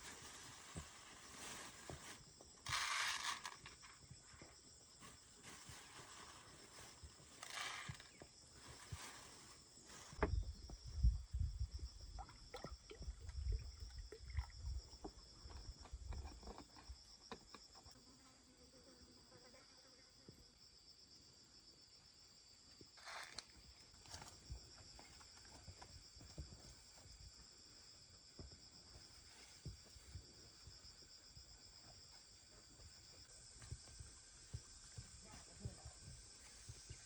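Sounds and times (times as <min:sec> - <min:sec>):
crickets chirring: 0:00.0 - 0:37.0.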